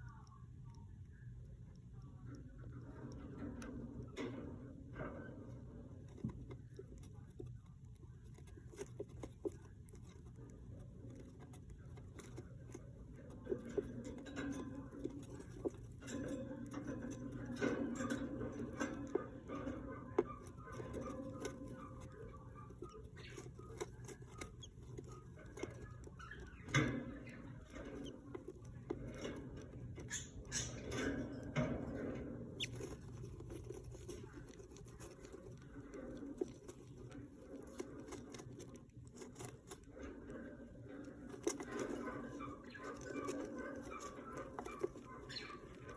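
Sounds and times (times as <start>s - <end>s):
scratching and rustling in nest: 1.6s - 45.9s
faint high chirping: 41.6s - 45.9s.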